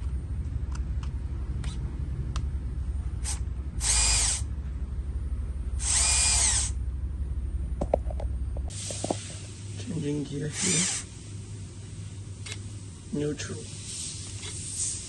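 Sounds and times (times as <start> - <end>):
steady low hum: 0.0 - 15.0
small electric motor whining: 3.2 - 4.5, 5.8 - 6.8, 10.5 - 11.1.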